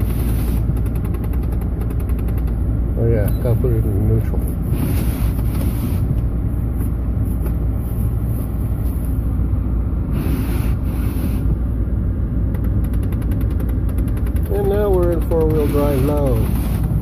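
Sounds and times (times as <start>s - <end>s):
car engine idling: 0.0s - 17.0s
fast even ticking: 12.6s - 17.0s.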